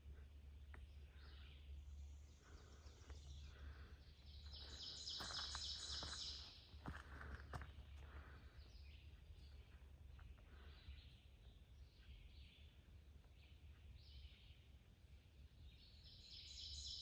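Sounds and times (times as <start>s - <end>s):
low steady rumble: 0.0s - 5.1s.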